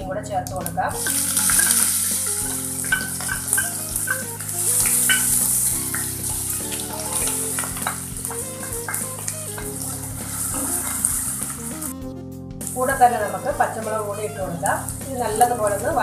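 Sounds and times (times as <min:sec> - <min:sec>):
garlic sizzling in hot oil: 0:00.7 - 0:12.0, 0:12.6 - 0:16.0
spatula scraping pan: 0:01.0 - 0:12.0.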